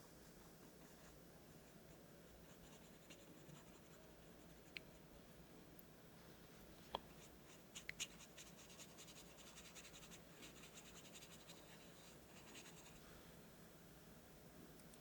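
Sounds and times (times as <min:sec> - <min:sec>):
paintbrush scratching on paper: 0:07.2 - 0:13.0.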